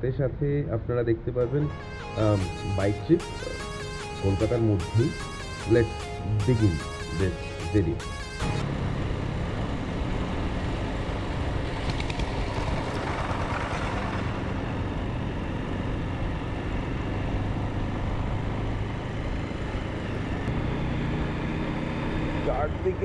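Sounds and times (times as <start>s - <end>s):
motorcycle engine drone: 1.5s - 23.0s
wind and road noise: 8.6s - 23.0s.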